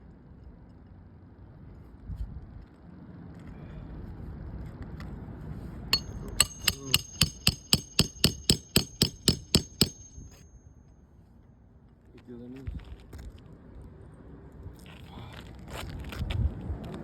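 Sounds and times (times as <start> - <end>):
hammer blows on nail: 6.0 - 10.6.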